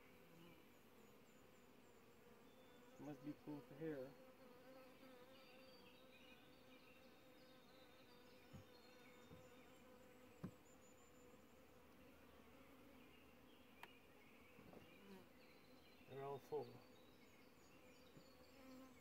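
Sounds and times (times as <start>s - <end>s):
bees buzzing: 0.1s - 16.0s.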